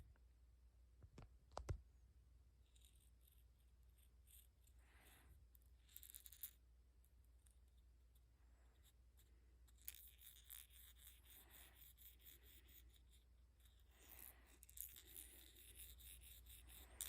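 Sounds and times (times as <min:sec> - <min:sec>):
plastic toy clicks and rubbing: 0:05.6 - 0:06.6, 0:09.2 - 0:17.0.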